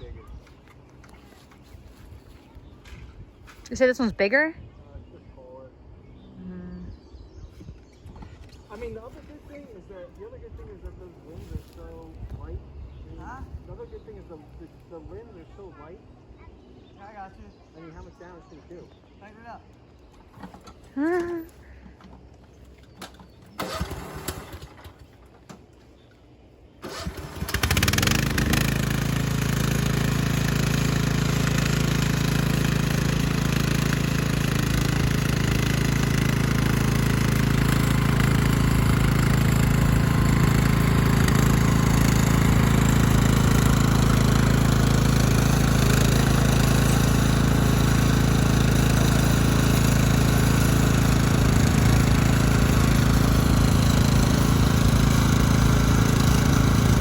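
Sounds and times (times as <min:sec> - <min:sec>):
engine starting and running: 0:20.1 - 0:25.7, 0:26.8 - 0:57.0.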